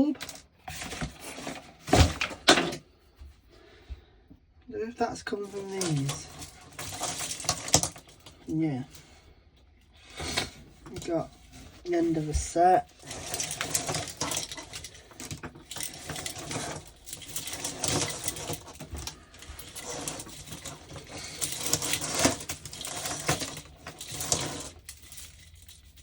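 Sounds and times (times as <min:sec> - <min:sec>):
light bulbs and wiring rattling: 0:05.4 - 0:08.5, 0:10.1 - 0:26.0.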